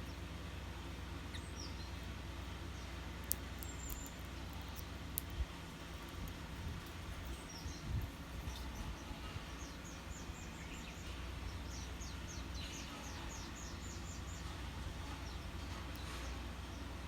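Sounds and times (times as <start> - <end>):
low background rumble: 0.0 - 17.0
small bird calling: 1.2 - 2.1, 2.7 - 14.5.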